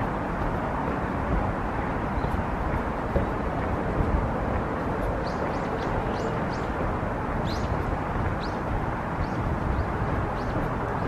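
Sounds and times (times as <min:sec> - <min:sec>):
steady low rushing noise: 0:00.0 - 0:11.0
small birds chirping: 0:05.1 - 0:11.0.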